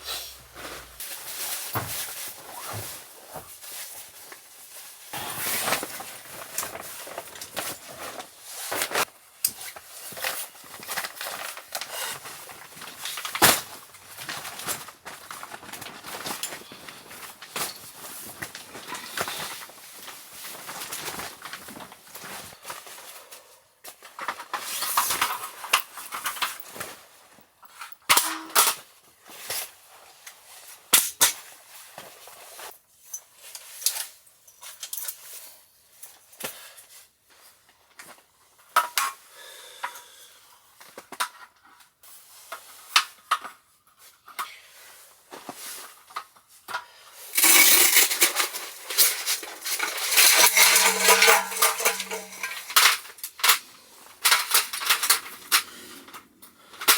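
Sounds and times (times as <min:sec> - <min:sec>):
camp cookware clinking: 0:28.1 - 0:28.6, 0:47.4 - 0:53.0.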